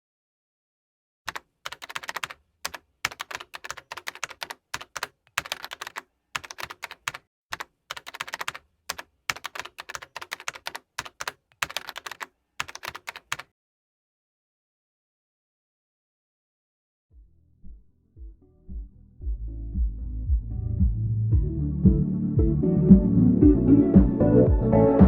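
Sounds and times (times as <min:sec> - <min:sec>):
keyboard typing: 0:01.3 - 0:13.5.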